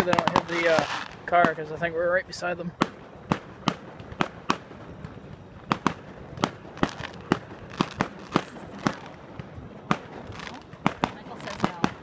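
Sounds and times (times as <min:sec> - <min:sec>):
fireworks bursting with sharp bangs: 0:00.0 - 0:12.0.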